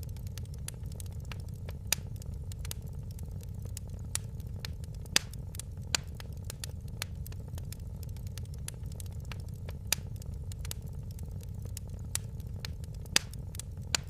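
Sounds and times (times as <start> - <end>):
fireplace fire crackling: 0.0 - 14.0.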